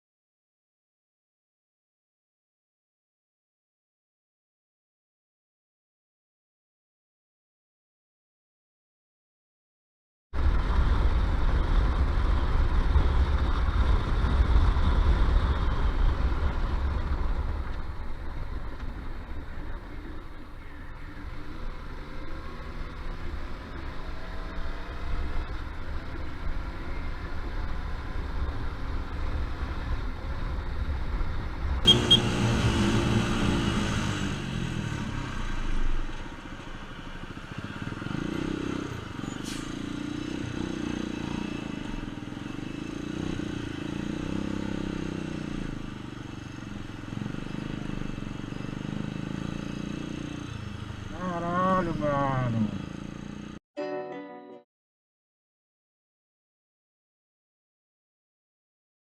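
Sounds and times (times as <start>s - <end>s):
road noise: 10.4s - 53.6s
vehicle engine revving: 31.8s - 35.9s, 46.8s - 53.6s.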